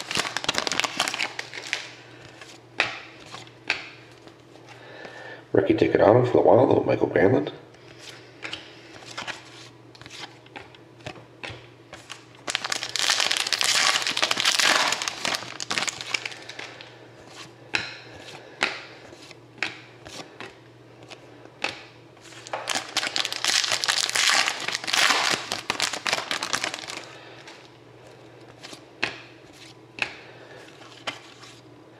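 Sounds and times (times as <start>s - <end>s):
foil wrappers crinkling: 0.0s - 2.6s, 11.9s - 17.5s, 22.2s - 27.7s.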